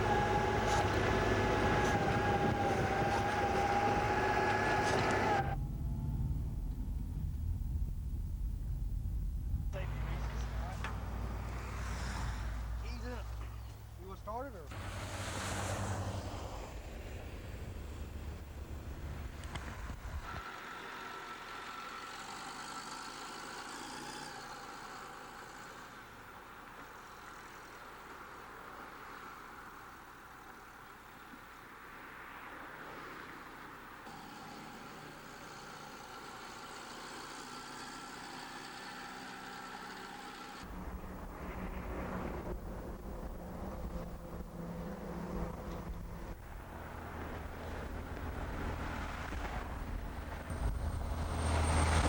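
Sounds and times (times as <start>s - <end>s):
vehicle engine low rumble: 0.0s - 23.8s, 35.5s - 52.0s
mechanical drone with high whine: 5.4s - 10.4s.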